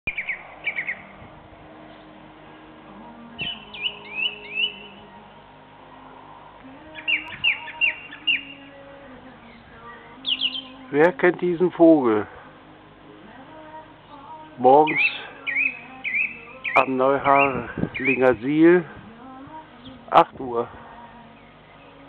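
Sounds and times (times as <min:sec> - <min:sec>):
songbird whistling: 0:00.1 - 0:01.2, 0:03.2 - 0:05.3, 0:06.9 - 0:08.8, 0:09.4 - 0:10.9, 0:14.8 - 0:18.4.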